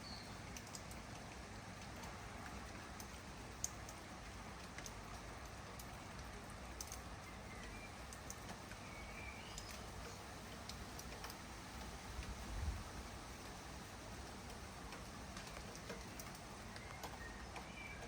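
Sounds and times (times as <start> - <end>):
small bird chirping: 0.0 - 1.0, 4.8 - 12.7, 14.8 - 18.0
sharp drip ticks: 0.0 - 12.6, 13.2 - 18.0
light rain falling: 0.0 - 18.0.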